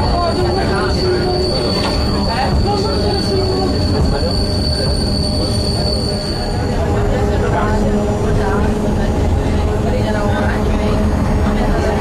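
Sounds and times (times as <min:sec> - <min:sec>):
high wheel squeal: 0:00.0 - 0:08.8
train rumbling: 0:00.0 - 0:12.0.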